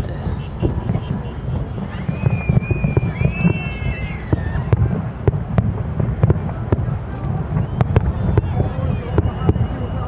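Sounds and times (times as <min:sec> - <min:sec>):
fireworks exploding: 0:00.0 - 0:10.0
wind on microphone: 0:00.0 - 0:10.0
high wavering whistle: 0:01.9 - 0:04.9, 0:07.6 - 0:10.0.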